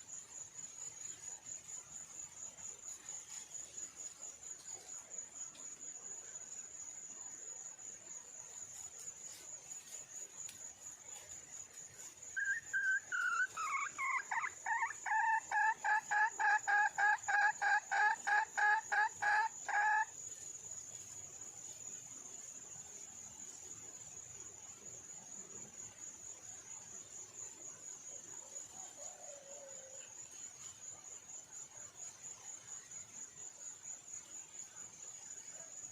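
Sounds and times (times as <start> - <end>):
high insect trill: 0.0 - 35.9
hen clucking rapidly: 12.5 - 20.1.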